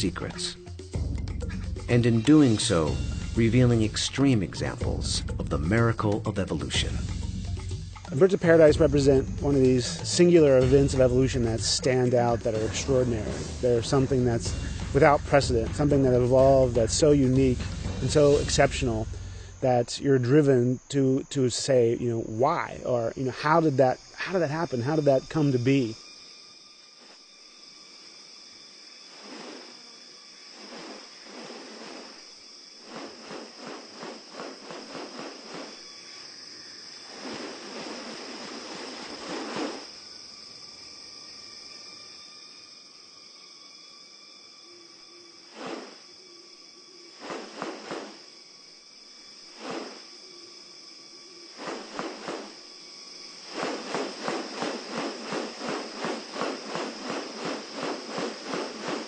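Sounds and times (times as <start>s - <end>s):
insects droning: 0.0s - 59.0s
rapid rattling pulses: 53.4s - 59.0s.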